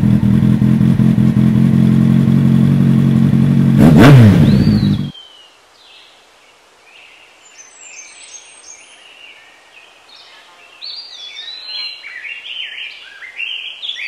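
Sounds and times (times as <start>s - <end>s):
songbirds singing: 4.4s - 14.0s
faint steady hiss: 5.1s - 14.0s.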